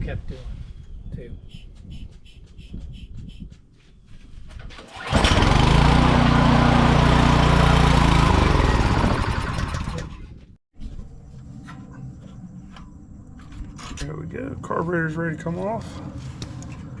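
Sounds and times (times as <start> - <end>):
small engine running and stalling: 4.7 - 10.3.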